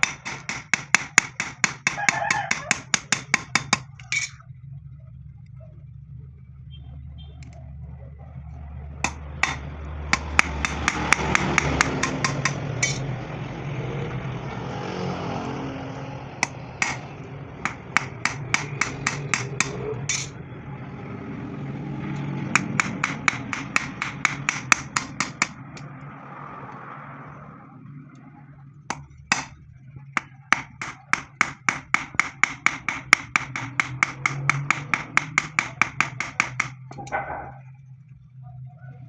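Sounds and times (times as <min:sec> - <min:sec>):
hammer blows on metal: 0:00.0 - 0:04.4, 0:09.1 - 0:13.1, 0:16.4 - 0:17.1, 0:17.7 - 0:20.4, 0:22.6 - 0:25.9, 0:28.9 - 0:29.6, 0:30.2 - 0:36.9
steady mechanical hum: 0:00.0 - 0:13.8, 0:16.2 - 0:39.0.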